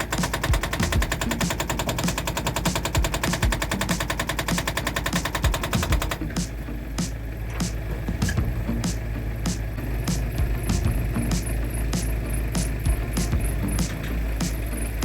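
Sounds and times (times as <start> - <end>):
hydraulic breaker hammering: 0.0 - 6.3
excavator engine running: 0.0 - 15.0.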